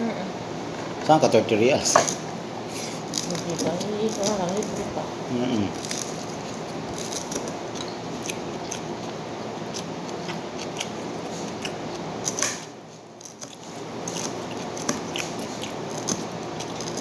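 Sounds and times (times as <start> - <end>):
steady background hum: 0.0 - 17.0
person chewing: 5.5 - 17.0.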